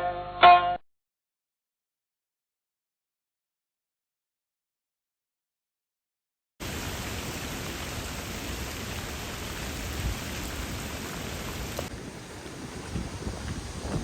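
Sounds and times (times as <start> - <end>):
heavy rain: 6.6 - 14.0
wind: 6.6 - 14.0.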